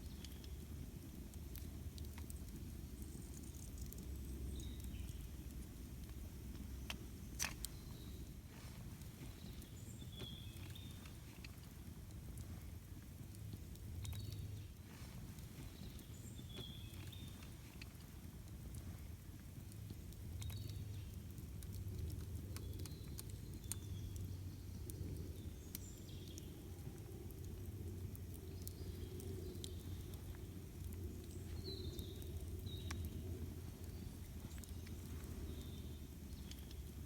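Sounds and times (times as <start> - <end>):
campfire crackling and popping: 0.0 - 37.0
low steady rumble: 0.0 - 37.0.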